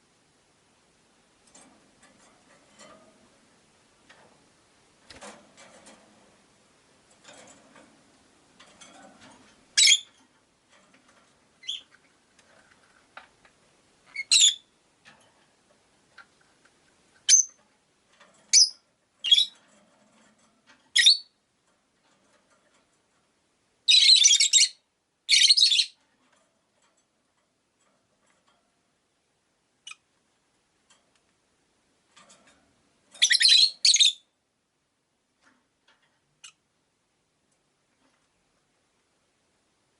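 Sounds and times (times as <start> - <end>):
parrot sharp chirps: 23.9 - 26.0.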